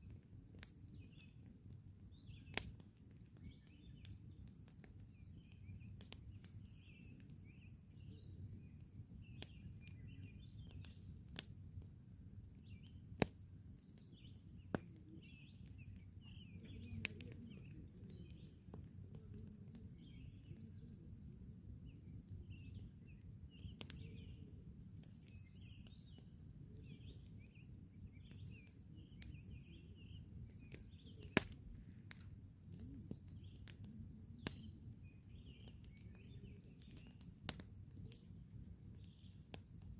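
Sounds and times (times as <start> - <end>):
campfire crackling: 0.0 - 39.9
small birds chirping: 0.0 - 39.9
sharp pops of fire: 30.6 - 34.7.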